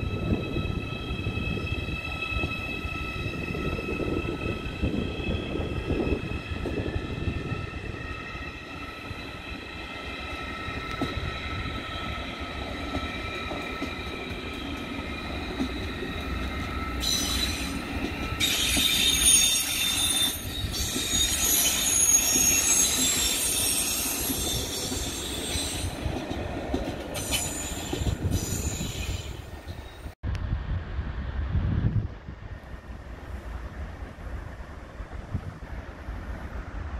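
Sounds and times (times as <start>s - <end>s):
wheel squeal on rails: 0.0s - 30.2s
low train rumble: 0.0s - 36.9s
train whine in several tones: 0.0s - 36.9s.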